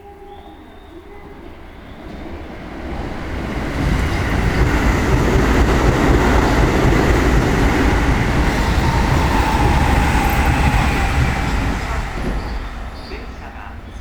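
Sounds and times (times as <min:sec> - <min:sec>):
electric train running on rails: 0:00.0 - 0:14.0.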